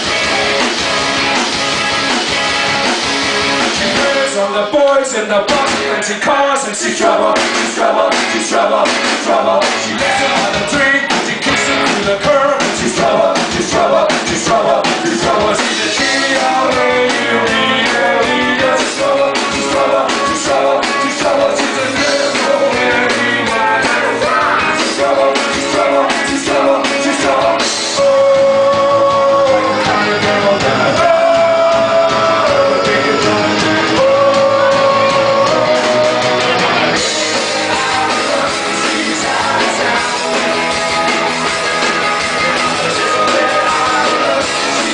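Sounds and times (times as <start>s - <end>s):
rock band playing: 0.0s - 44.9s
person singing: 3.6s - 44.9s.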